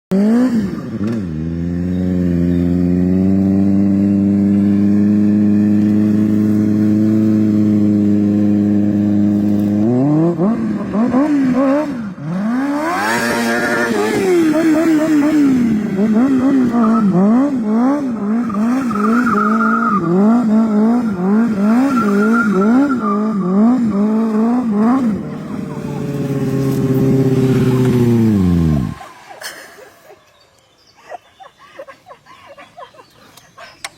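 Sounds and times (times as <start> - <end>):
motorcycle engine revving: 0.1 - 29.4.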